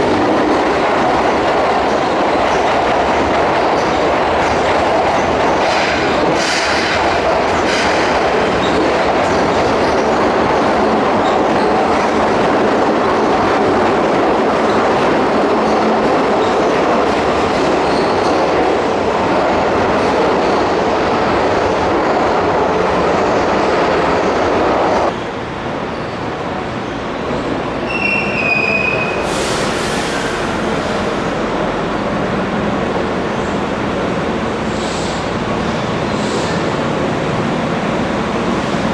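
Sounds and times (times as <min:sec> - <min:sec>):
train wheels clattering on rails: 0:00.0 - 0:21.9
train wheel squeal: 0:17.8 - 0:18.4, 0:27.8 - 0:30.9
hiss burst: 0:29.2 - 0:30.9.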